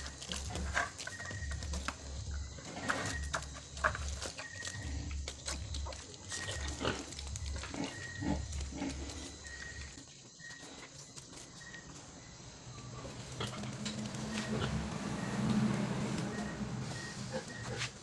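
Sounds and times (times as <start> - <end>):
piglets grunting: 4.1 - 9.9, 13.2 - 18.0.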